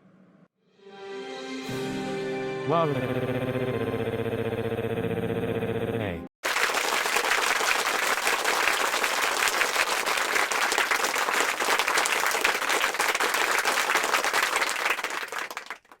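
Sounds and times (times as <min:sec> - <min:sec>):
crowd applause: 0:06.4 - 0:16.0.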